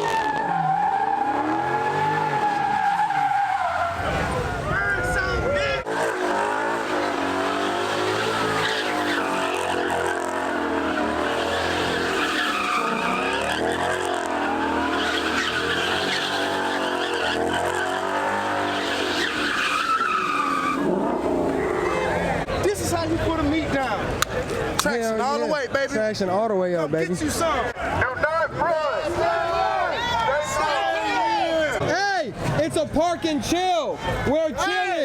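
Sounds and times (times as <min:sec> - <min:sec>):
car engine revving: 0:00.0 - 0:04.7, 0:05.8 - 0:23.7
tyres squealing and skidding: 0:00.0 - 0:24.7.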